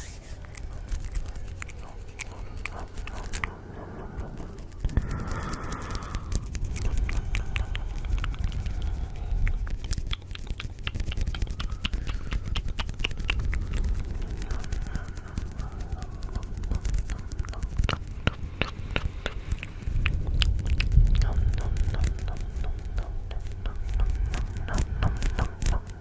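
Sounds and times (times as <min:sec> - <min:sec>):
rapid irregular clicking: 0:00.0 - 0:26.0
steady low rumble: 0:00.0 - 0:26.0.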